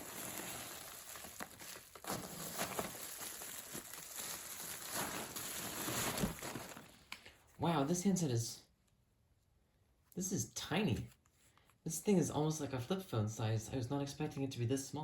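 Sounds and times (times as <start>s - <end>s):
packaging rustling: 0.0s - 7.2s.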